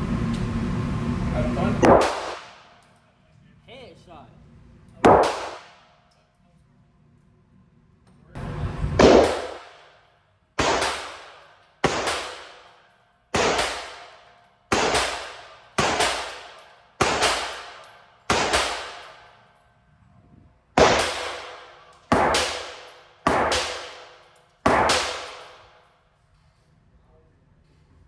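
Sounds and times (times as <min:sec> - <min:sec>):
gunshots with echo: 0:01.8 - 0:02.8, 0:05.0 - 0:05.8, 0:09.0 - 0:09.9, 0:10.6 - 0:12.7, 0:13.3 - 0:19.3, 0:20.8 - 0:25.7.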